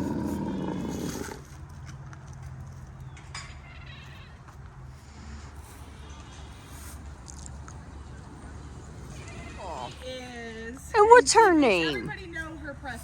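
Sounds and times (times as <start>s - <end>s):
camel grumbling: 0.0s - 1.5s.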